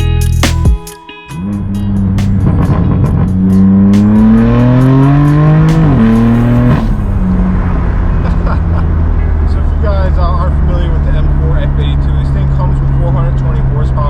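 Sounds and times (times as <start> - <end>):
car engine accelerating hard: 1.4 - 14.0.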